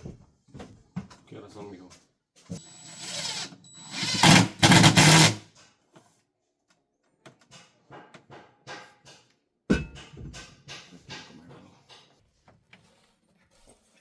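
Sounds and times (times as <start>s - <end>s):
power tool motor running: 2.6s - 5.4s.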